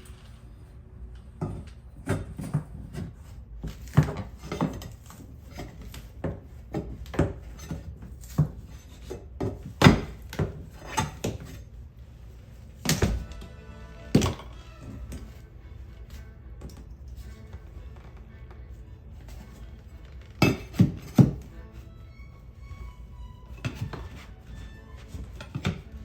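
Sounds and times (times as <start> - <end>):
rubbing and scraping: 2.1 - 26.0
objects knocking and clicking: 14.2 - 15.3, 20.3 - 21.6.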